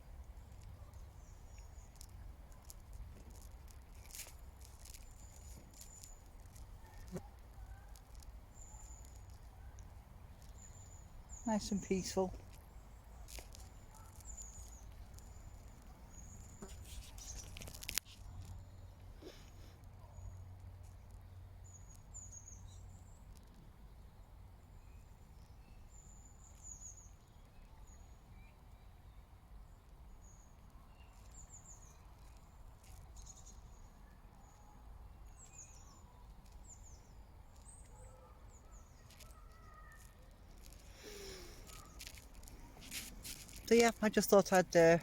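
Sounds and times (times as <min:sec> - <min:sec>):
small bird chirps: 0:00.1 - 0:19.0, 0:30.1 - 0:45.0.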